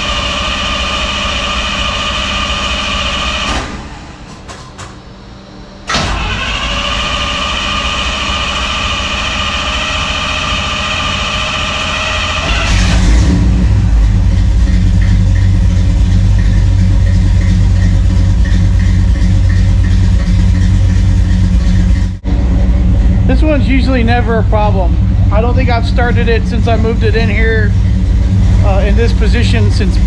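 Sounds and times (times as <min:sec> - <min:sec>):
car engine running: 0:00.0 - 0:04.3, 0:05.9 - 0:30.0
car starter cranking: 0:05.9 - 0:22.2, 0:23.8 - 0:30.0.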